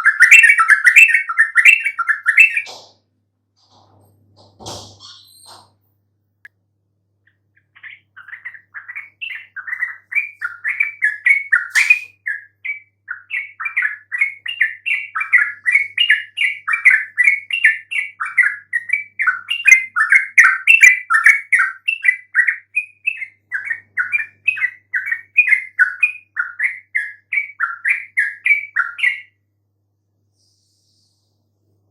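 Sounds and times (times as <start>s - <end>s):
bird singing bubbling chirps: 7.5s - 29.4s.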